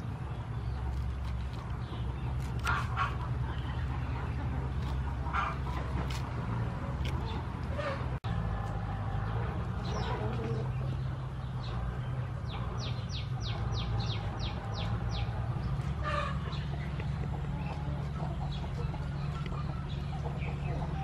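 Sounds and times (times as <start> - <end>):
chicken clucking: 0.1 - 21.0
bird chirping: 6.8 - 21.0.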